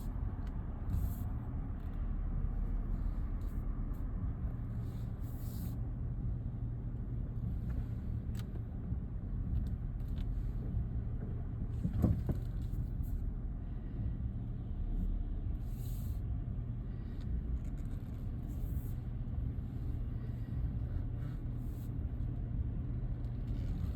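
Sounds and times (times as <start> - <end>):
car engine rumbling: 0.0 - 23.9.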